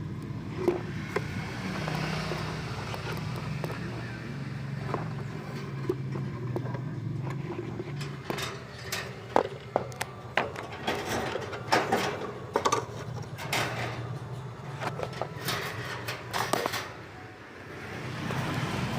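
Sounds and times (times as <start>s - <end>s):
vehicle engine running: 0.0s - 10.8s
sharp clicks and knocks: 0.2s - 4.0s, 4.8s - 17.0s.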